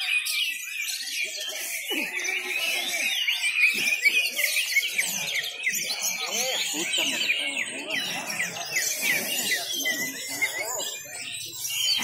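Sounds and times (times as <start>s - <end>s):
faint voices: 0.0s - 12.0s
songbirds singing: 0.0s - 12.0s.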